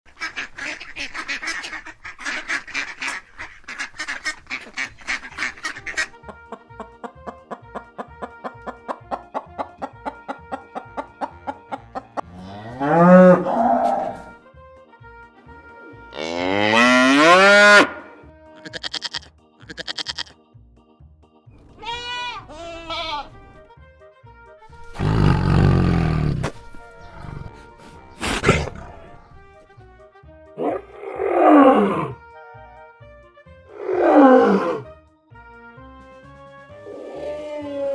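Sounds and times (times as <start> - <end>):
duck quacking: 0.1 - 12.6, 18.6 - 20.3
tuneful music: 5.3 - 20.4, 21.5 - 37.2
cow mooing: 12.2 - 14.4, 16.1 - 20.3, 24.7 - 29.6, 30.6 - 32.2, 33.7 - 34.9
lion roaring: 12.3 - 14.4, 24.9 - 29.6, 30.6 - 32.2, 33.7 - 34.9
cat meowing: 18.6 - 20.3, 21.8 - 23.3
goat bleating: 18.6 - 20.4, 21.7 - 23.6.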